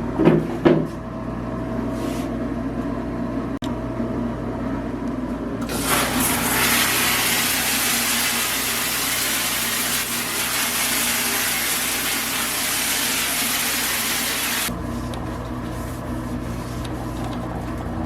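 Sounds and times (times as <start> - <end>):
low machine hum: 0.0 - 18.0
loud hiss of spraying: 5.6 - 14.7.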